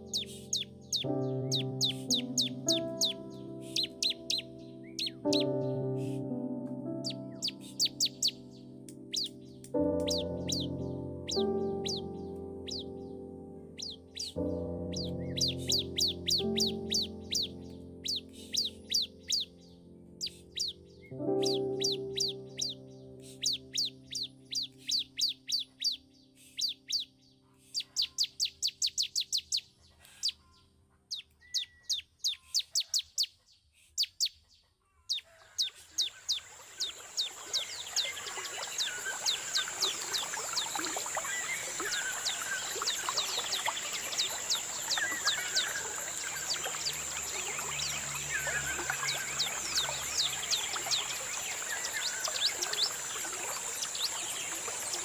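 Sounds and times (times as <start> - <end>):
birds whistling: 0.0 - 5.5, 7.0 - 8.5, 10.0 - 12.9, 15.0 - 19.6, 35.1 - 53.1
music chord: 0.0 - 24.9
birds chirping: 0.0 - 55.0.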